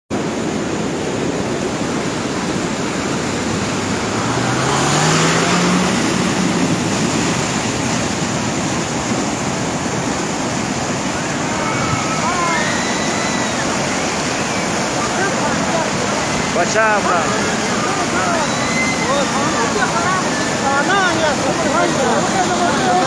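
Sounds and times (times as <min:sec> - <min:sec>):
river rushing: 0:00.1 - 0:23.0
rising hum: 0:02.6 - 0:10.0.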